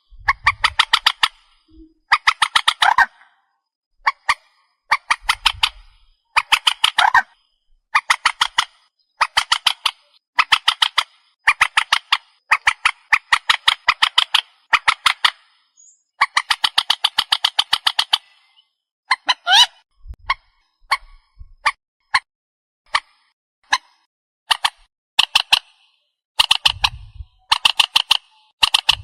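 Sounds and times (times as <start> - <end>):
swamphen harsh repeated calls: 0.0 - 3.3, 4.0 - 15.6, 16.2 - 19.8.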